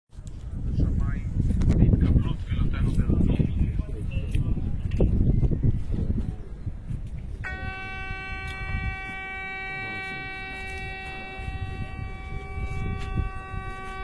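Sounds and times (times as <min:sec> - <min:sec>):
shofar horn blast: 0:07.4 - 0:14.0.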